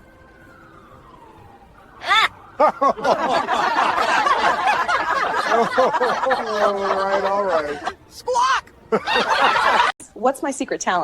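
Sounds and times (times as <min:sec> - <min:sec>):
group of people laughing: 0:02.6 - 0:08.0, 0:08.9 - 0:10.0.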